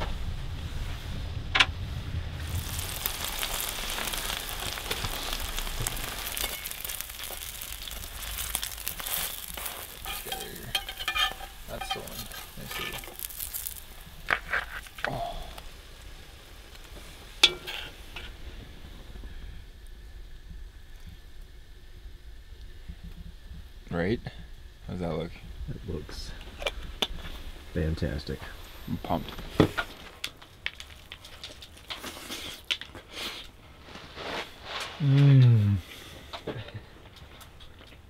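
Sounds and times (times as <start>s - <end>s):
pork sizzling in a pan: 2.4s - 19.6s.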